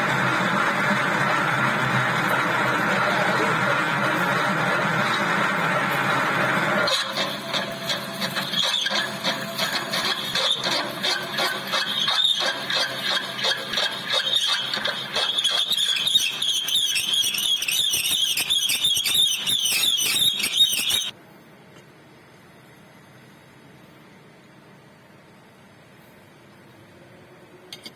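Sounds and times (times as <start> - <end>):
lathe tool squealing against steel: 6.8 - 21.1.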